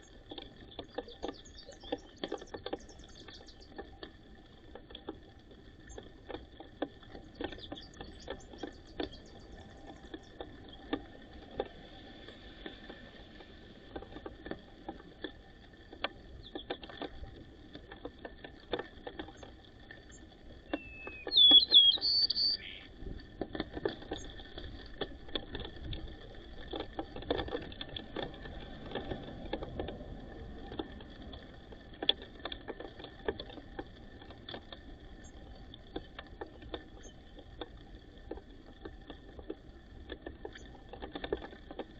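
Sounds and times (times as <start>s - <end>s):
short bird chirp: 20.8s - 22.9s.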